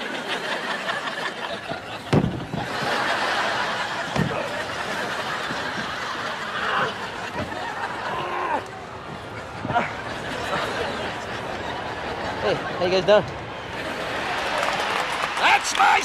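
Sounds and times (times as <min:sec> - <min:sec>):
studio audience laughing: 0:00.0 - 0:08.4, 0:09.8 - 0:12.9
dull thumps: 0:02.1 - 0:02.7, 0:04.1 - 0:04.5.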